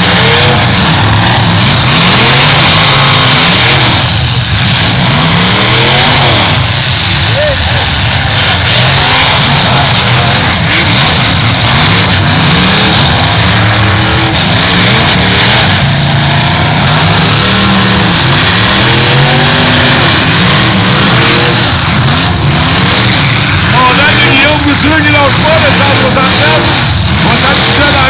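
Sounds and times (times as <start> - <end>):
car engines revving hard: 0.0 - 28.0.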